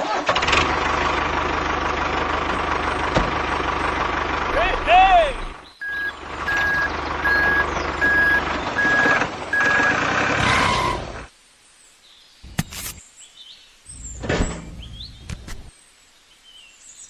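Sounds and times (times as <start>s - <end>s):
engine running: 0.1s - 11.3s
reversing alarm beeping: 5.8s - 10.1s.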